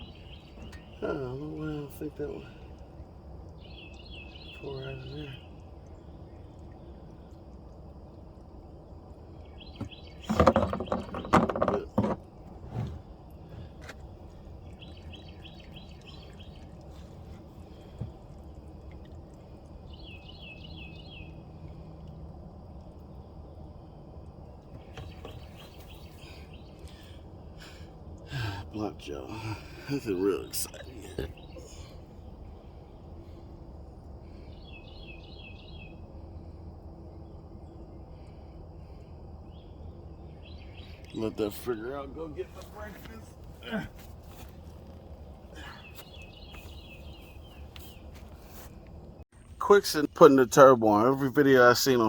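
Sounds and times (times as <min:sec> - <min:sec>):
songbird chirping: 0:00.0 - 0:52.0
steady low rumble: 0:12.2 - 0:51.4.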